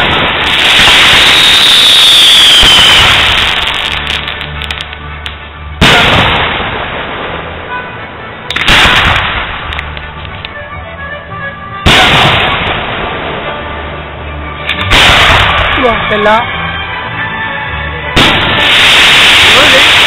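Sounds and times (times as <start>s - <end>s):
fireworks shells bursting: 0.0s - 7.4s, 8.5s - 10.6s, 14.6s - 16.3s, 18.2s - 20.0s
fireworks crackle: 0.0s - 7.8s, 8.5s - 10.6s, 11.9s - 13.7s, 14.6s - 16.5s, 18.2s - 20.0s.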